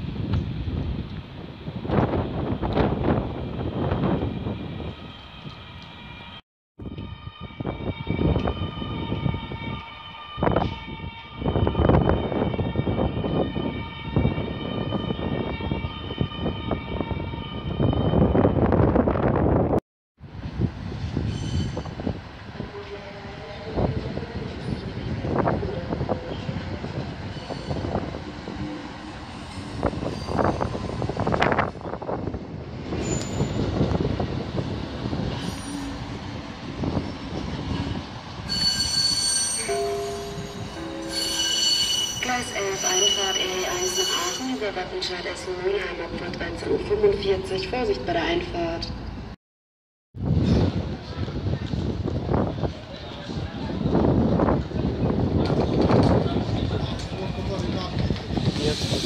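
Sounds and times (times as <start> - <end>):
train rumbling: 0.0 - 49.4, 50.2 - 59.0
train wheels squealing: 21.2 - 22.0, 27.3 - 28.0, 29.3 - 30.9, 32.9 - 33.8, 35.3 - 36.0, 37.1 - 44.7, 58.4 - 59.0.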